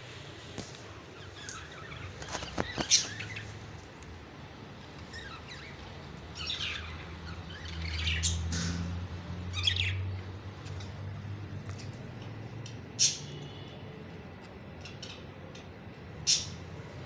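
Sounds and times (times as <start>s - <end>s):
parrots chirping and squawking: 1.1s - 3.7s, 4.8s - 10.9s, 12.9s - 13.5s, 14.8s - 16.7s.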